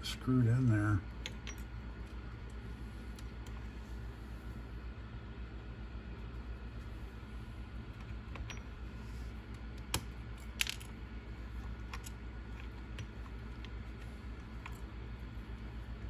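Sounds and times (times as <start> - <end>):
small metal parts clinking: 10.4 - 11.0.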